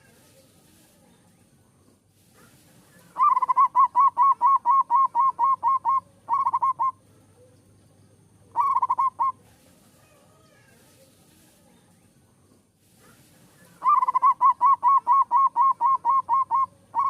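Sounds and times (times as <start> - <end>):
dove cooing: 3.1 - 7.0, 8.5 - 9.4, 13.7 - 17.0.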